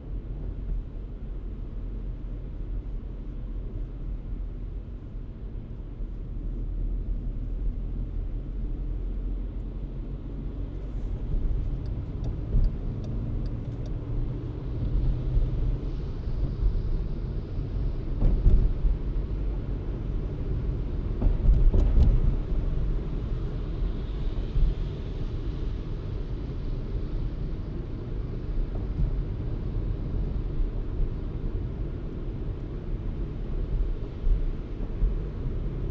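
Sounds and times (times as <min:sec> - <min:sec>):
car engine and tyre rumble: 0:00.0 - 0:35.9.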